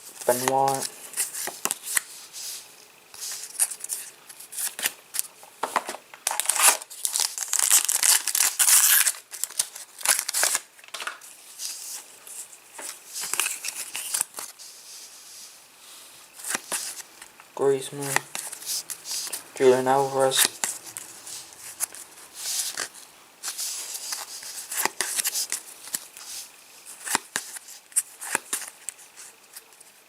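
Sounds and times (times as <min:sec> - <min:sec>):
cards being handled: 0:00.1 - 0:14.7, 0:16.4 - 0:17.3, 0:17.9 - 0:29.9
foil packet tearing and crinkling: 0:06.2 - 0:11.8, 0:13.2 - 0:14.6.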